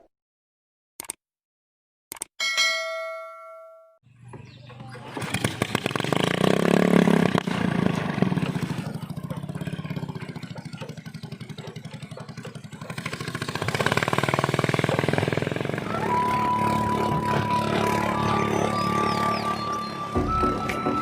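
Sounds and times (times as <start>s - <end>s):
small engine revving and puttering: 5.0s - 21.0s.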